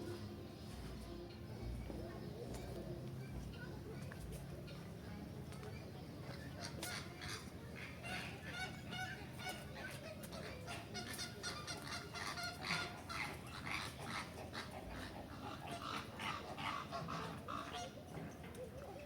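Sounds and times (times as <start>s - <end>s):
birds calling in chorus: 10.4s - 18.1s.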